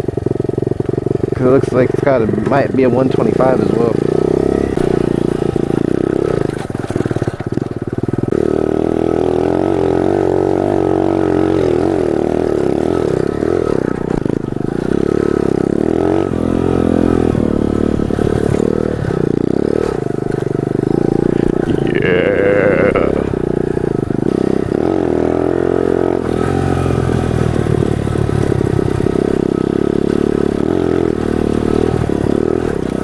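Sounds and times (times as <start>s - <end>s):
small motorcycle engine revving: 0.0s - 33.0s.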